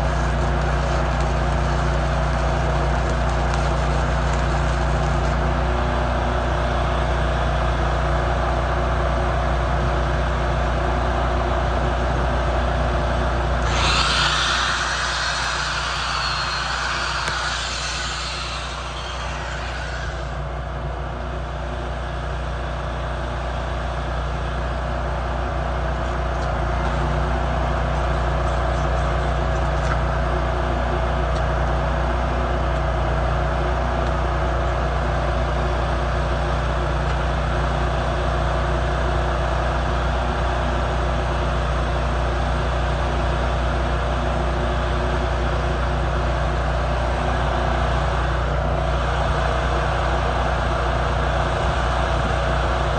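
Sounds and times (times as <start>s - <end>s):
welding arc crackling: 0.0s - 5.4s, 13.6s - 20.4s
welding machine hum: 0.0s - 5.8s, 13.6s - 20.6s.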